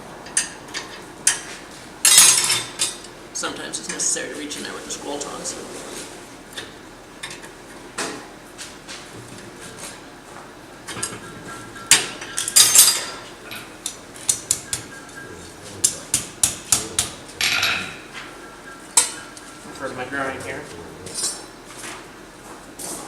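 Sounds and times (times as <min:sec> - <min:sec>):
metal tools clinking on iron: 0:02.1 - 0:03.1, 0:12.2 - 0:13.7, 0:16.7 - 0:18.1, 0:21.1 - 0:21.6
tools scraping hot iron: 0:11.9 - 0:18.2.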